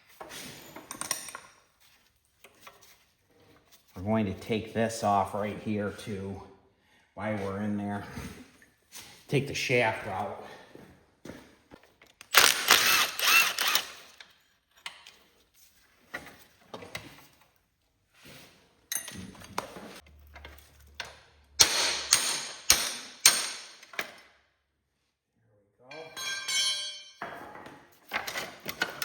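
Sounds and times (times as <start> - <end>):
metal tools clanking and scraping: 25.9 - 29.0.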